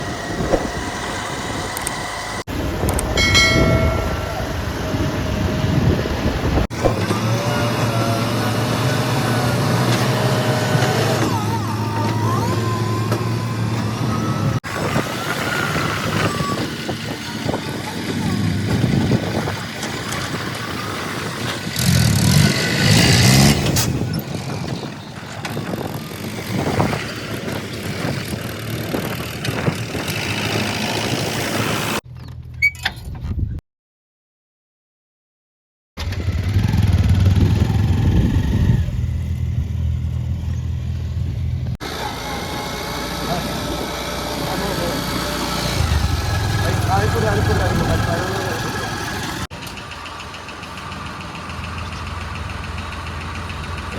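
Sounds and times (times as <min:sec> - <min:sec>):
heavy diesel machinery engines: 0:00.0 - 0:32.0, 0:36.0 - 0:53.9.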